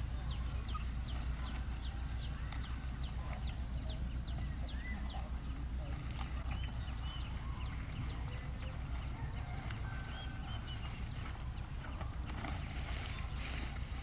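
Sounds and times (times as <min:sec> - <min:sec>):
birds chirping: 0:00.0 - 0:14.0
steady low rumble: 0:00.0 - 0:14.0.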